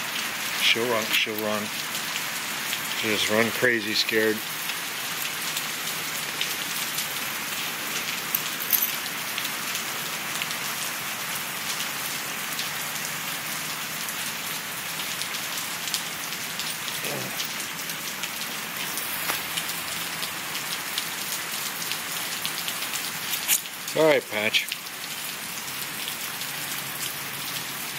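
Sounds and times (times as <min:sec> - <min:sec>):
heavy rain pouring: 0:00.0 - 0:27.9
raindrops ticking sharply: 0:12.6 - 0:27.7.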